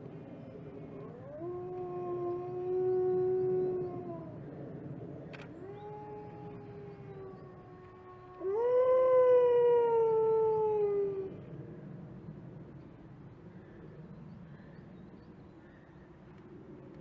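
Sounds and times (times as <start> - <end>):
wolf howling: 1.0 - 4.4, 5.5 - 11.4.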